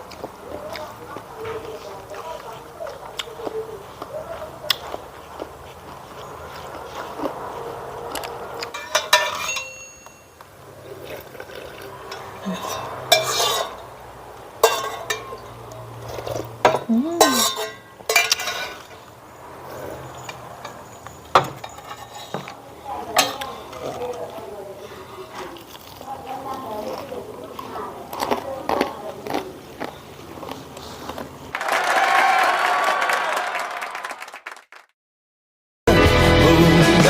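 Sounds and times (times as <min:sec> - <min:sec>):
cutlery clinking on dishes: 0:08.6 - 0:10.4, 0:12.0 - 0:13.9, 0:14.6 - 0:15.6, 0:16.7 - 0:19.1, 0:19.7 - 0:24.2.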